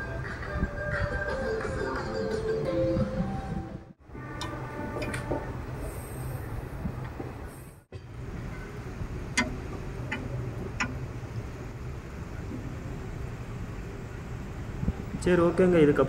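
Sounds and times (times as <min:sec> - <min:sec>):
train rumble from inside coach: 0:03.2 - 0:16.0
wheels clicking over rail joints: 0:04.1 - 0:05.8, 0:06.8 - 0:14.8.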